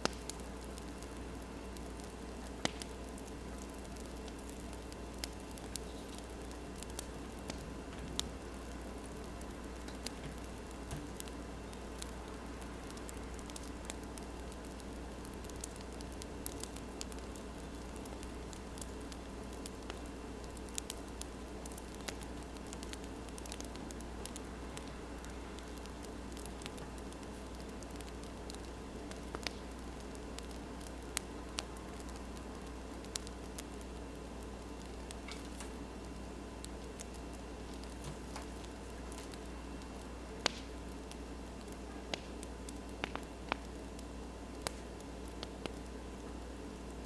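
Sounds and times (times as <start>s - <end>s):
wood fire crackling: 0.0s - 47.0s.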